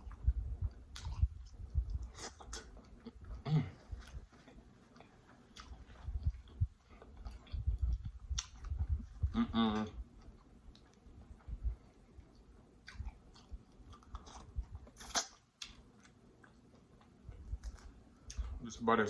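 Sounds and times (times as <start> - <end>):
soft low thuds: 0.0 - 2.2, 6.0 - 10.1
chewing food: 0.0 - 18.6
wet mouth clicks: 7.3 - 10.0, 14.9 - 15.8
person humming: 9.2 - 10.0.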